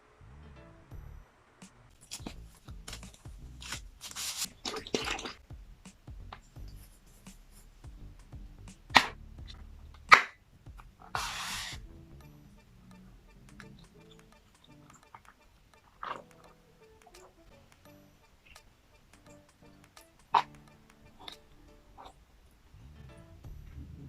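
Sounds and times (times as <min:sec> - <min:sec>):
faint background music: 0:00.0 - 0:24.0
packaging rustling and crinkling: 0:02.0 - 0:05.4.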